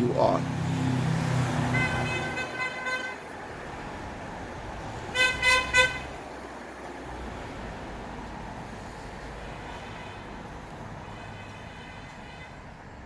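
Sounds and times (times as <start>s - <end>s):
vehicle horn toots: 1.7s - 3.2s, 5.1s - 6.1s.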